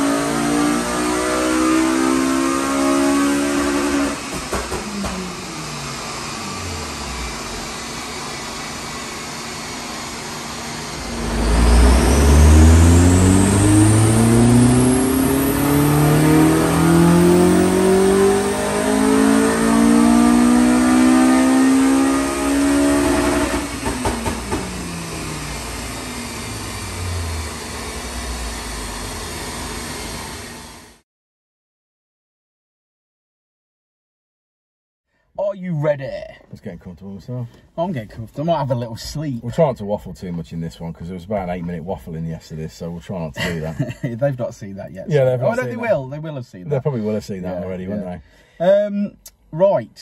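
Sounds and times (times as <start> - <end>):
car engine revving on dyno: 0.0 - 31.0
high whine: 4.9 - 31.0.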